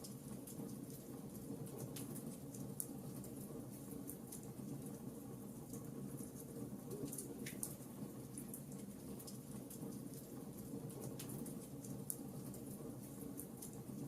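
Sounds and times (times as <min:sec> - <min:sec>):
fire crackling and popping: 0:05.7 - 0:14.0.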